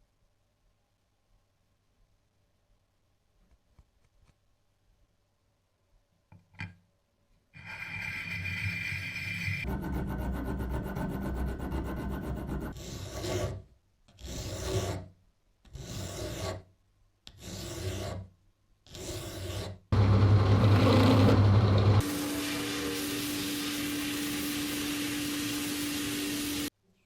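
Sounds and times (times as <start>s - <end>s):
rasping on a workpiece: 7.6s - 15.1s, 15.7s - 16.7s, 17.3s - 18.3s, 18.9s - 19.8s
machine humming: 20.0s - 26.7s.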